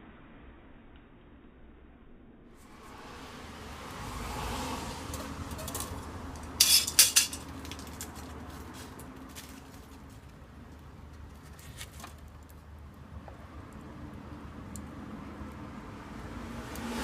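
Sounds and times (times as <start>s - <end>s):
metal cookware clinking: 5.1s - 7.9s.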